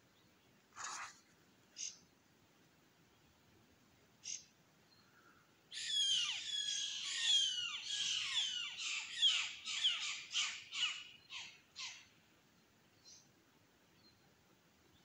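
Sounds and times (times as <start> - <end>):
wild bird calling: 4.2 - 12.1.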